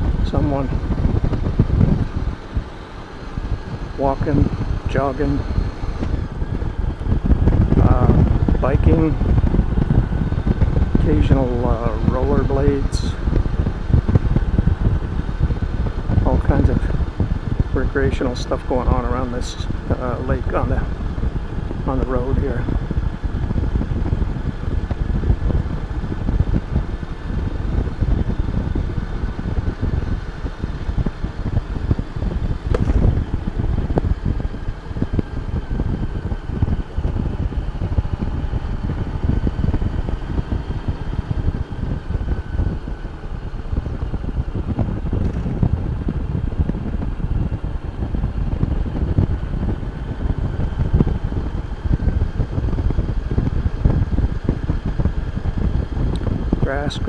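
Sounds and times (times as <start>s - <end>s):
faint steady whine: 0.0s - 57.0s
motorcycle engine and road noise: 0.0s - 57.0s
wind rumble on microphone: 0.0s - 57.0s
sharp tap: 32.7s - 33.2s.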